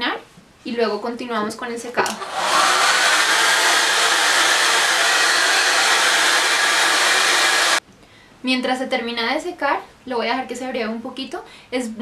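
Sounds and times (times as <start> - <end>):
hair dryer blowing: 2.0 - 7.8.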